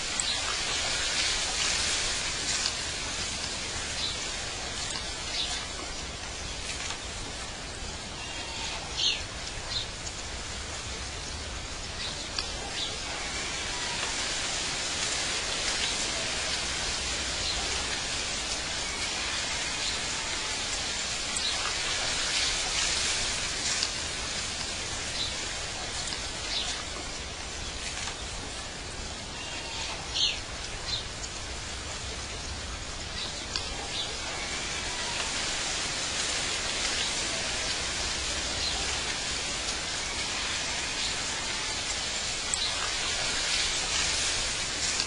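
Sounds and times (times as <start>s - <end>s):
waterfall splashing: 0.0s - 45.0s.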